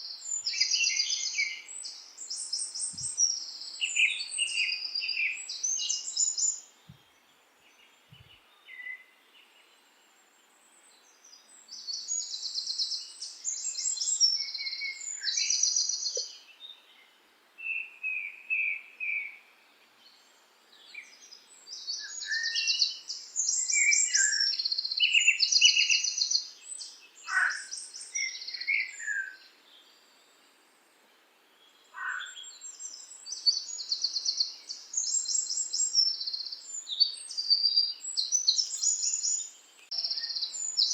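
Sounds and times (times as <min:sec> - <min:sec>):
birds singing trilled phrases: 0:00.0 - 0:06.7, 0:11.0 - 0:17.0, 0:20.8 - 0:30.0, 0:31.7 - 0:40.9.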